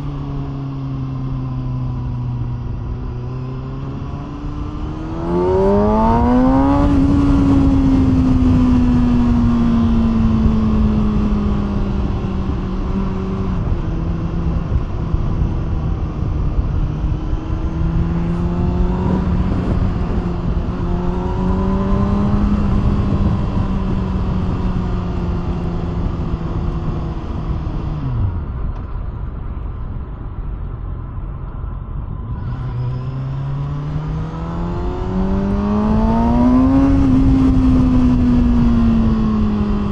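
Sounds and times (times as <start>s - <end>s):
sport motorcycle engine revving: 3.1s - 14.4s, 16.9s - 28.4s, 32.5s - 39.9s.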